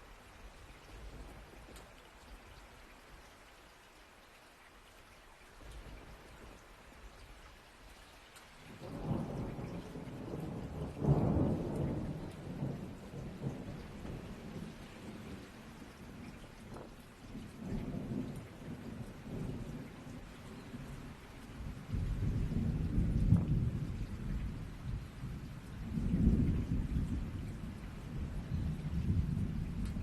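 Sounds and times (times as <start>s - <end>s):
steady rain: 0.0s - 30.0s
thunder rumbling: 8.7s - 30.0s.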